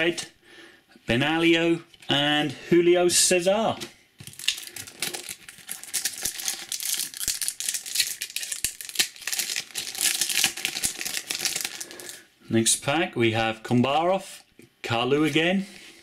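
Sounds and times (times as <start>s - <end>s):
wrapper crinkling and tearing: 4.2s - 12.2s.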